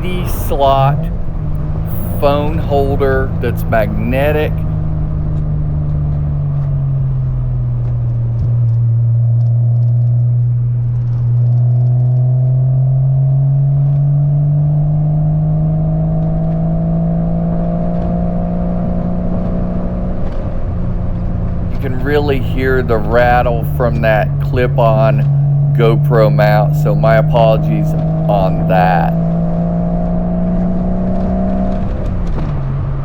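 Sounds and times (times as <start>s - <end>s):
car engine running: 0.0s - 5.8s, 20.6s - 32.9s.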